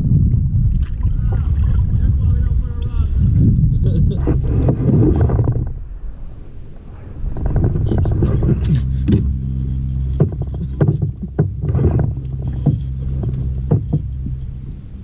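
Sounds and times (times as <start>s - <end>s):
steady low hum: 0.0s - 15.0s
paddle splashing and knocking: 0.7s - 2.1s, 4.2s - 5.8s, 7.2s - 15.0s.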